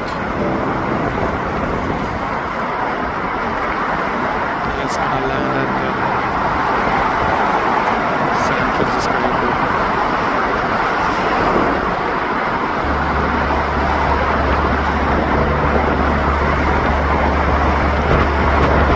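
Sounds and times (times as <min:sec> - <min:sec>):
deep steady hum: 0:00.4 - 0:02.6, 0:04.9 - 0:08.8, 0:12.8 - 0:18.9.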